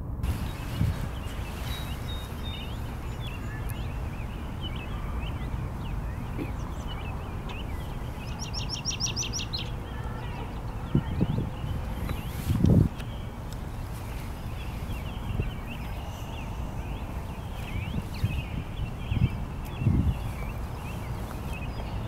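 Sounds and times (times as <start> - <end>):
steady low rumble: 0.0 - 22.0
small birds chirping: 0.2 - 22.0
rapid bird trill: 0.4 - 12.4.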